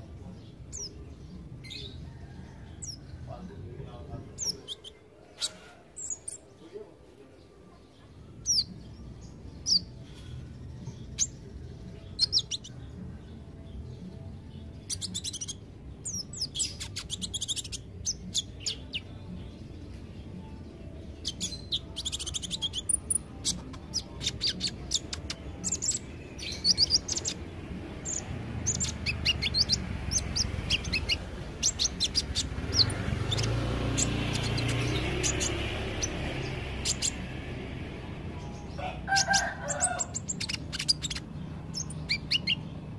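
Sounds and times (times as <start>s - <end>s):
sunbird high chirps and trills: 8.4s - 13.0s, 13.8s - 37.4s, 38.5s - 42.9s.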